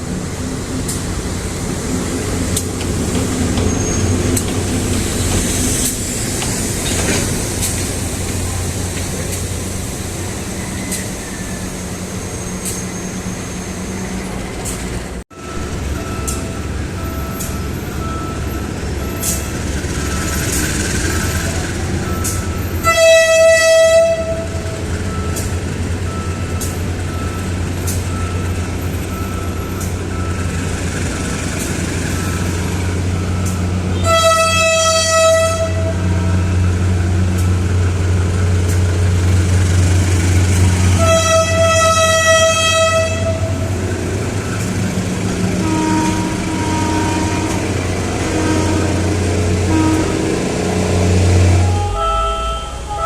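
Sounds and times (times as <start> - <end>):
train horn blasts: 22.8 - 24.7, 33.9 - 36.6, 40.9 - 43.7, 45.6 - 53.0.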